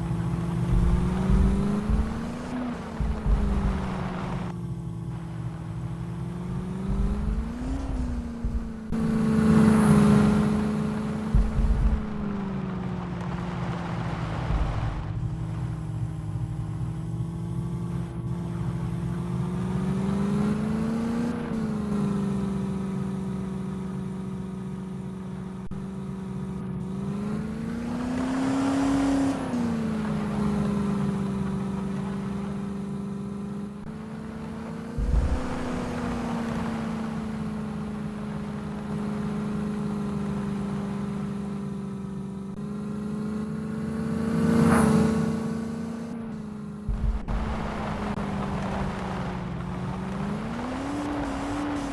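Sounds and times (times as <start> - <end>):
low thump: 0.0 - 4.6, 5.6 - 9.4, 10.1 - 17.1, 35.0 - 36.7, 46.8 - 50.4
engine revving: 0.0 - 51.9.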